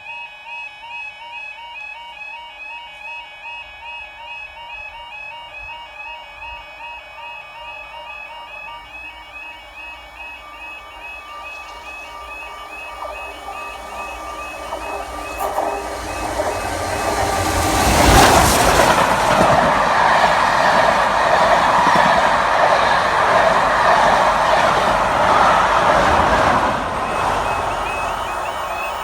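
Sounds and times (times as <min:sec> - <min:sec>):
steam locomotive passing: 0:08.9 - 0:29.0
coaches rumbling and clattering: 0:11.4 - 0:29.0.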